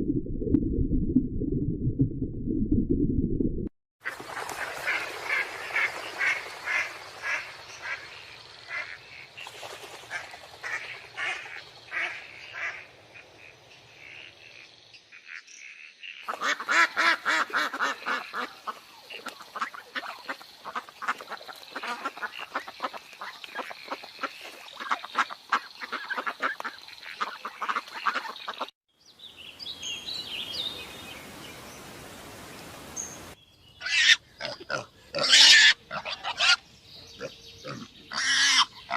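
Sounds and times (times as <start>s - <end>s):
ducks quacking: 10.1s - 14.6s, 16.3s - 28.7s.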